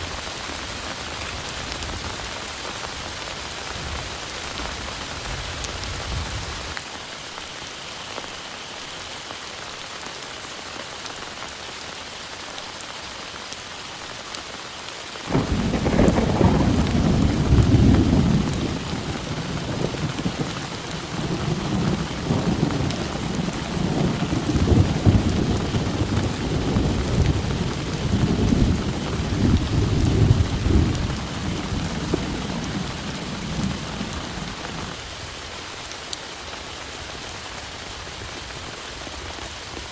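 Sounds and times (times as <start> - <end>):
heavy rain falling: 0.0 - 39.9
rolling thunder: 15.3 - 35.0.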